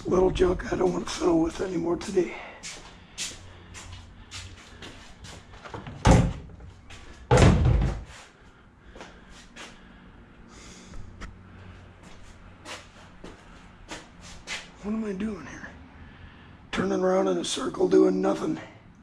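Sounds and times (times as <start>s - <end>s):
loud thuds: 7.3s - 8.1s.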